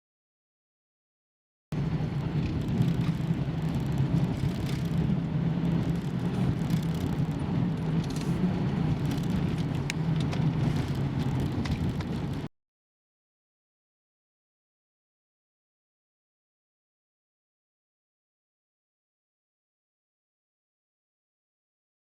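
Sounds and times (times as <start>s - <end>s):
car engine humming: 1.8s - 12.5s.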